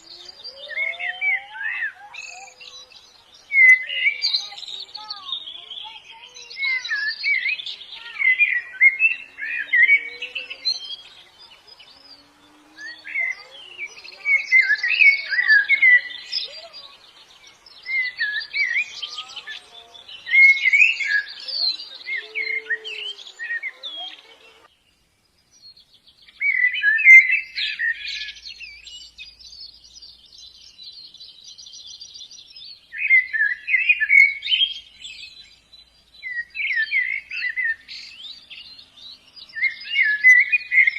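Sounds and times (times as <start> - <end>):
small birds twittering: 0.0 - 40.9.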